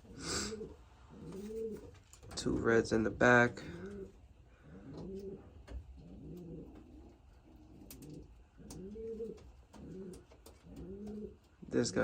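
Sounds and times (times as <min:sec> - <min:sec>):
pigeons cooing: 0:00.0 - 0:02.3, 0:03.3 - 0:12.0.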